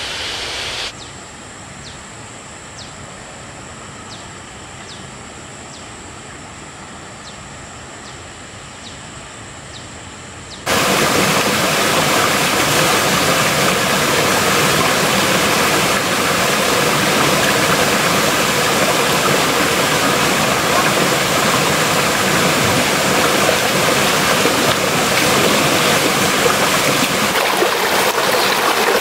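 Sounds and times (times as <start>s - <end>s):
rush of falling water: 10.7s - 29.0s.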